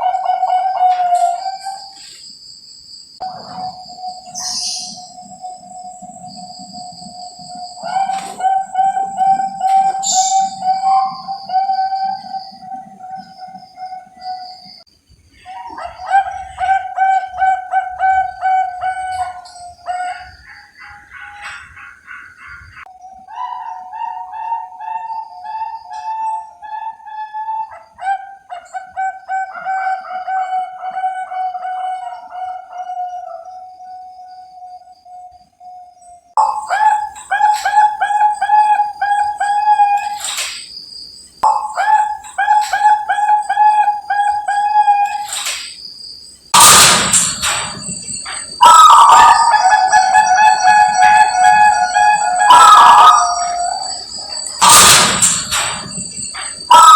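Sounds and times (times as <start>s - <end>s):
doves cooing: 0.0s - 2.2s, 3.2s - 33.7s, 36.4s - 40.5s, 41.4s - 45.6s, 46.6s - 56.9s
rooster crowing: 15.5s - 21.6s, 46.6s - 56.9s.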